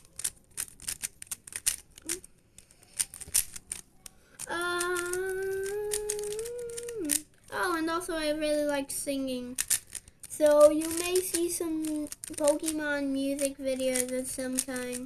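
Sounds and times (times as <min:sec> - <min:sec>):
puzzle cube clicking: 0:00.0 - 0:15.0
person humming: 0:04.4 - 0:07.3.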